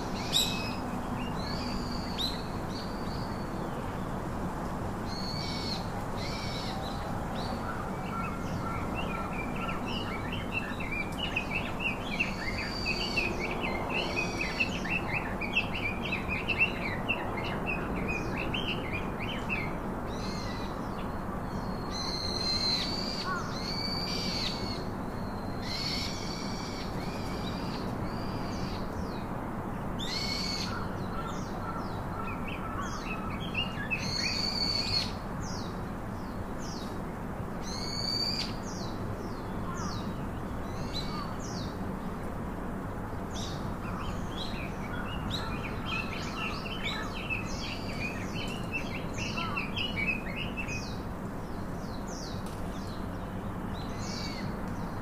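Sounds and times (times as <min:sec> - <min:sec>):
birds chirping and calling: 0:43.4 - 0:51.0.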